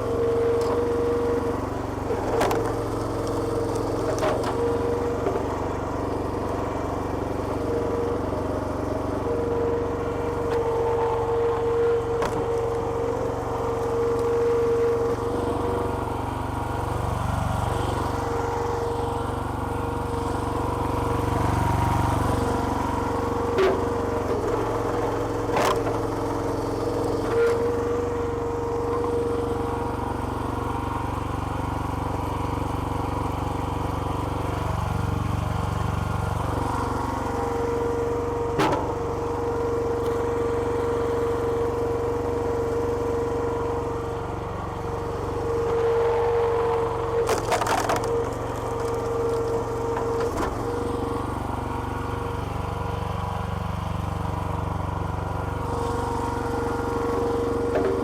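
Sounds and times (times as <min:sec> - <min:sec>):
small petrol engine running: 0:00.0 - 0:58.0.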